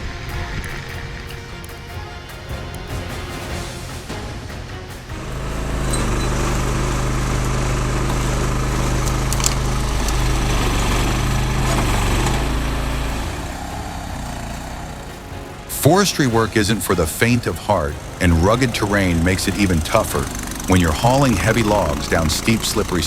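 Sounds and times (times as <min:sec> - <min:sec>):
heavy vehicle engine running: 0:03.9 - 0:23.0.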